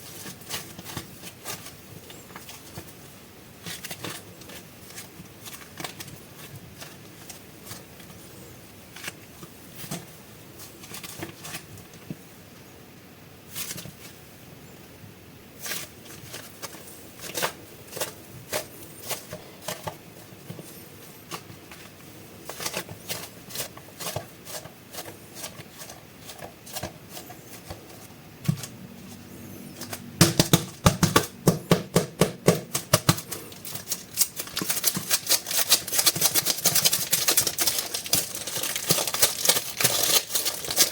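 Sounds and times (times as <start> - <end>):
plastic wrapping crinkling: 0.0 - 12.1, 32.7 - 40.9
taps on packaging: 30.2 - 33.3.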